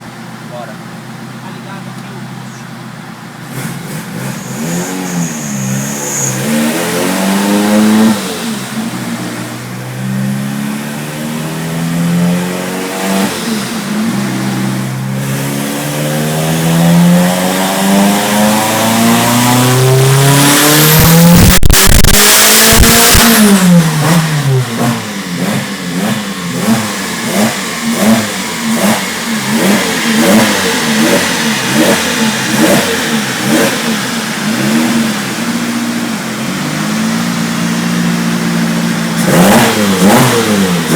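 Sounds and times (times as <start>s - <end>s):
turbocharged engine revving: 0.0s - 40.9s
sharp exhaust burst: 3.5s - 9.5s, 12.8s - 37.0s.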